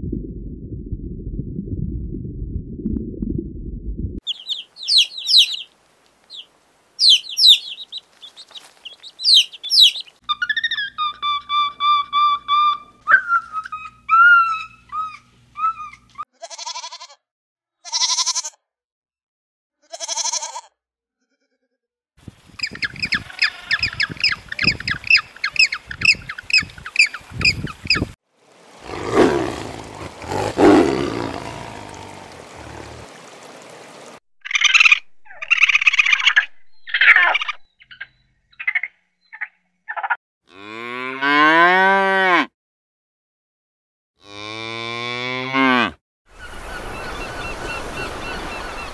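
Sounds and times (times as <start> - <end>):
short choppy animal calls: 4.3 - 5.7, 7.0 - 10.1
squeaky whistling calls: 4.3 - 5.7, 6.3 - 16.2
penguins calling rhythmically: 7.0 - 8.0
long harsh animal call: 28.7 - 33.2.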